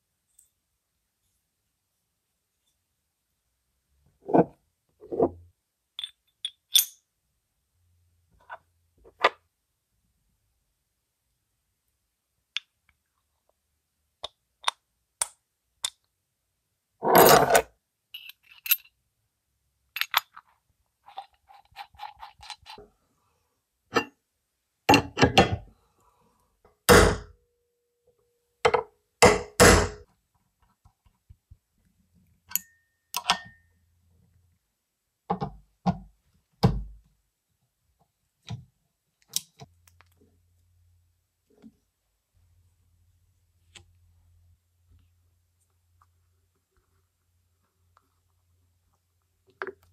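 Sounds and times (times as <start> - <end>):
metal tools knocking and clinking: 6.0 - 7.0.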